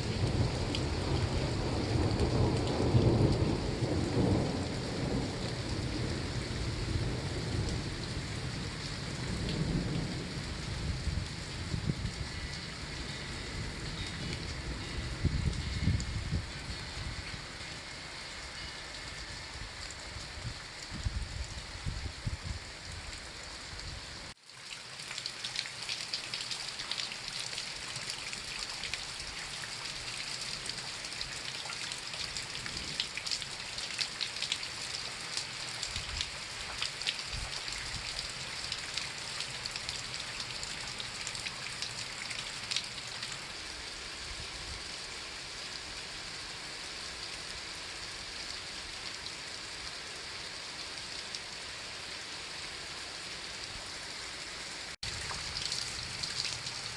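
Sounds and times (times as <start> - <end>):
rain falling: 0.0 - 56.9
raindrops clicking: 55.0 - 56.9.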